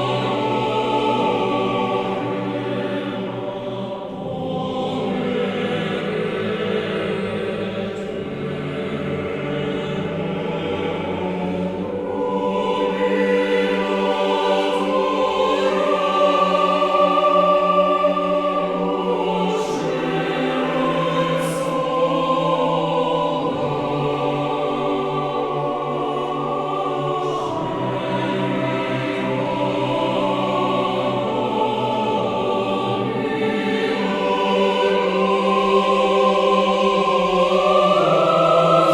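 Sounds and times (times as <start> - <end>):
choral music: 0.0 - 38.9.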